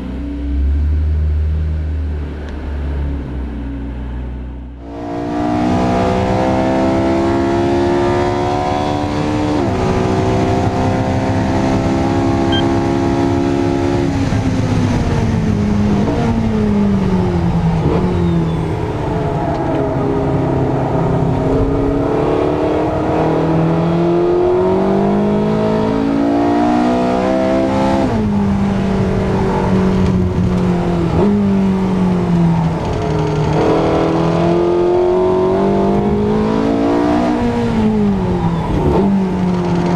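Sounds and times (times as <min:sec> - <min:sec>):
sports car engine shifting gears: 0:29.3 - 0:39.9.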